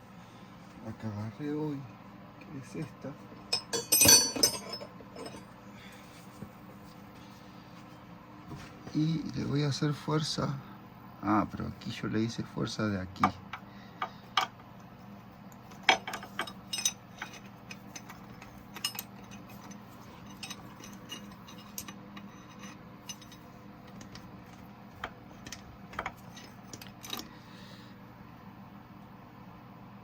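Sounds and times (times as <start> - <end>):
low steady hum: 0.0 - 30.0
metal tools clinking on engine parts: 3.5 - 5.5, 15.7 - 24.6, 25.4 - 27.3.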